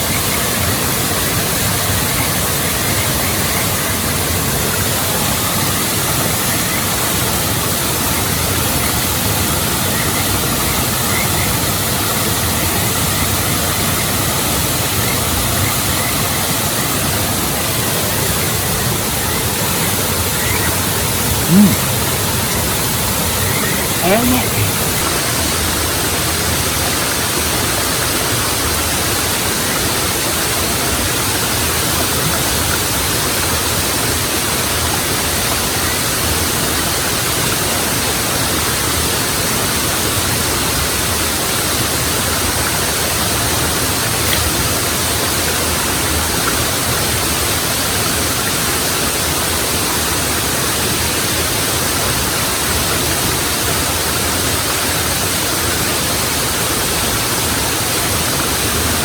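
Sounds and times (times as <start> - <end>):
waterfall rushing: 15.9 - 31.8.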